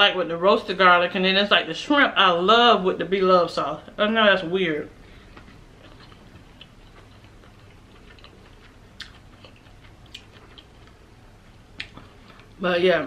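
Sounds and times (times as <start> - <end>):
person chewing food: 5.0 - 12.6.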